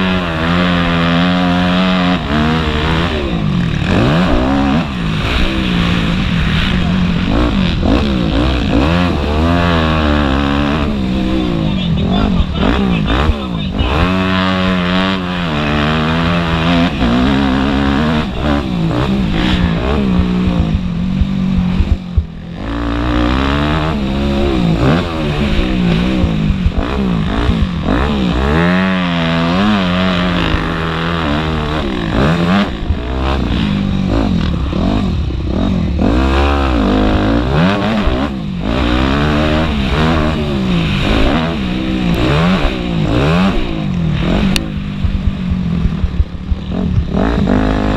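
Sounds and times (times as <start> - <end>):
motocross bike engines racing: 0.0 - 47.9.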